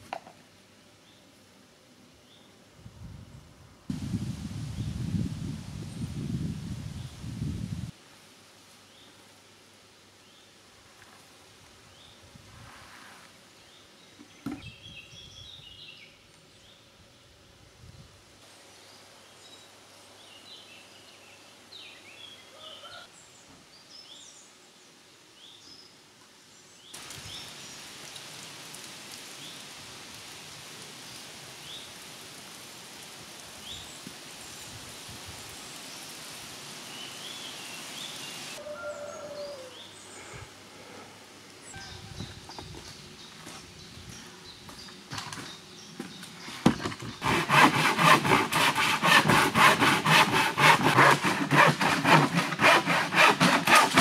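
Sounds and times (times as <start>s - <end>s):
steady hiss: 0.0s - 14.4s, 23.1s - 38.6s, 39.7s - 46.6s
birds chirping and singing: 41.7s - 47.2s.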